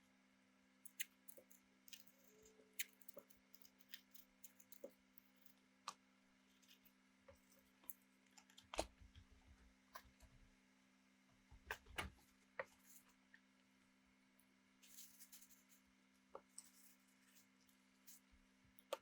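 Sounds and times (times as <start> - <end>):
faint small clicks and taps: 11.5 - 13.5, 14.8 - 19.0.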